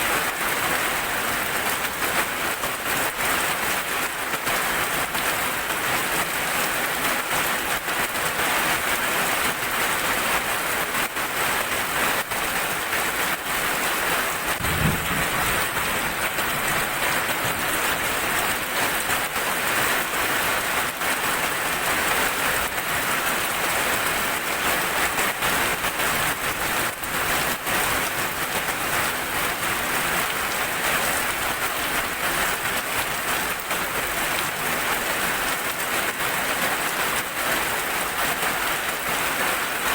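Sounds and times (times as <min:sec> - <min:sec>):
heavy rain falling: 0:00.0 - 0:39.9
low rumble of thunder: 0:14.5 - 0:18.2.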